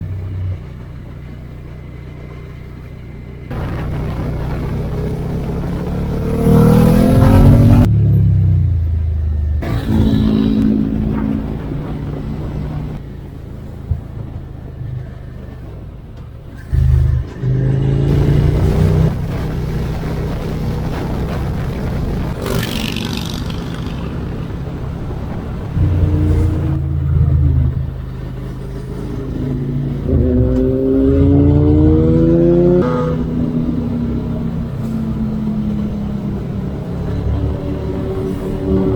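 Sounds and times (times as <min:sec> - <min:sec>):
motorcycle engine accelerating: 0:00.0 - 0:38.9
wind and road noise: 0:00.0 - 0:38.9.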